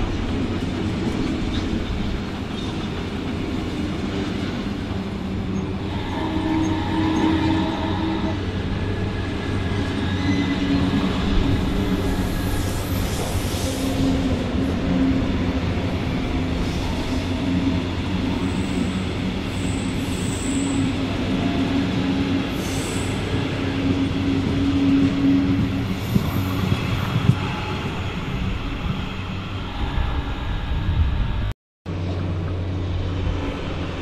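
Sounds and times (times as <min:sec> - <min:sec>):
high wheel squeals: 0:09.5 - 0:11.1.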